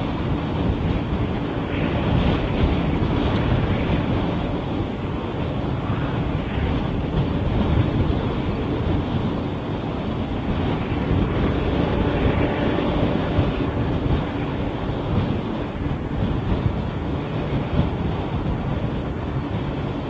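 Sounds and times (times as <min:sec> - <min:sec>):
freight train rumbling past: 0:00.0 - 0:20.0
wind buffeting microphone: 0:00.0 - 0:20.0.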